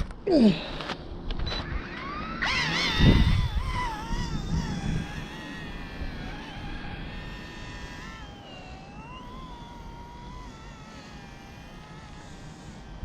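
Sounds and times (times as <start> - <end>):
small helicopter motor whining: 0.4 - 13.0
wind rumble on microphone: 2.6 - 8.3.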